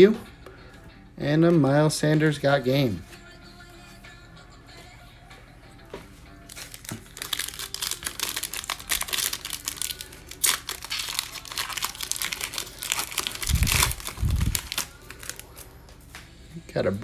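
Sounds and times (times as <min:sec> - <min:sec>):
foil wrapper crinkling and tearing: 0:06.5 - 0:15.8.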